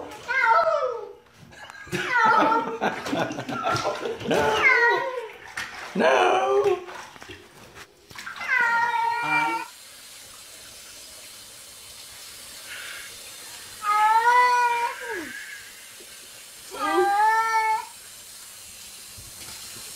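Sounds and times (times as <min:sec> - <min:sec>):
cat meowing: 0:08.4 - 0:09.7.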